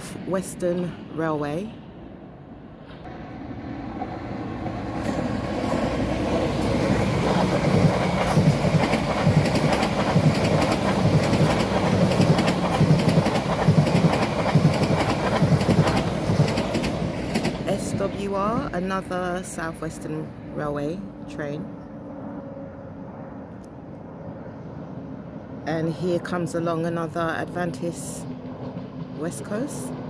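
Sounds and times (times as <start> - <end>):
passenger train passing: 0.0 - 30.0
wheels clicking over rail joints: 7.2 - 17.8.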